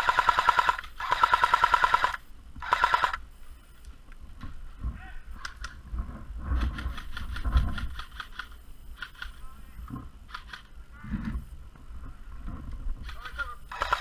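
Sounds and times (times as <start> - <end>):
airsoft gun firing bursts: 0.0 - 3.2, 13.1 - 14.0.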